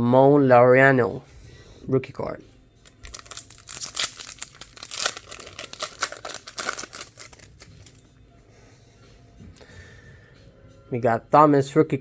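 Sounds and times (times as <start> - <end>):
foil wrapper tearing and crinkling: 2.8 - 8.0.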